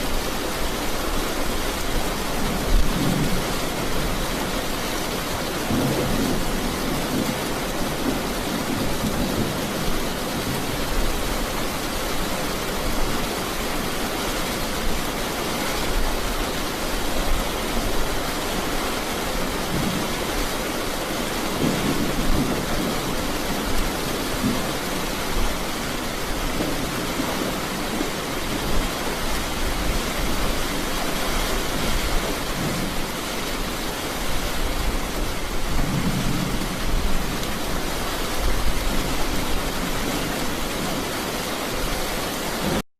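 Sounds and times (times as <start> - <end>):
steady rain: 0.0 - 42.8.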